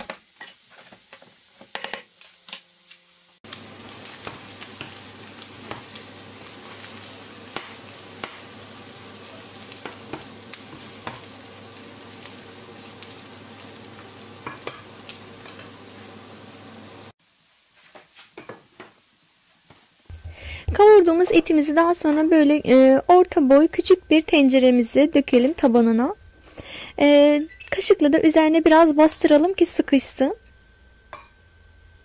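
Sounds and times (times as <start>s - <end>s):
meat sizzling in a frying pan: 0.0s - 20.1s.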